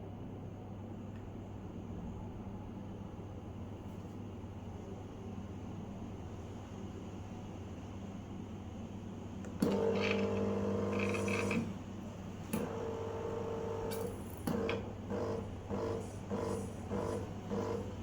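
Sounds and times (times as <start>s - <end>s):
espresso machine pump buzzing: 9.6s - 18.0s
low steady hum: 9.6s - 18.0s.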